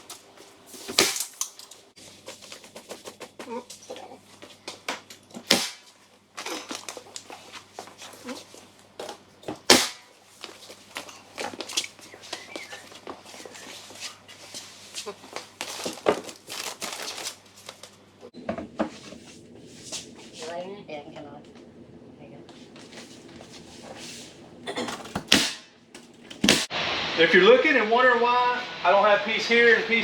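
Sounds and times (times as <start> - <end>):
boards knocking and clicking: 2.2 - 17.3
nail gun firing: 5.5 - 5.9, 9.7 - 10.0, 25.3 - 25.7.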